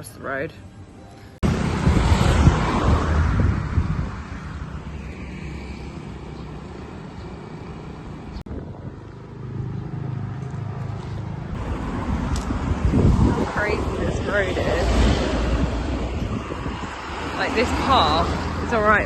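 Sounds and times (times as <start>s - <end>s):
road traffic noise: 0.0s - 19.0s
wind buffeting microphone: 1.4s - 5.3s, 8.4s - 19.0s
vehicle passing loudly: 1.4s - 19.0s.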